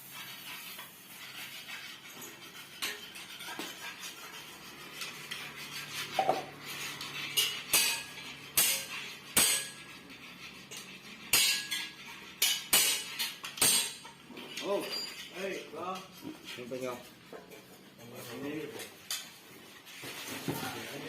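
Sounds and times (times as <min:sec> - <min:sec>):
metal objects clanking: 0:06.0 - 0:09.9, 0:10.6 - 0:19.4.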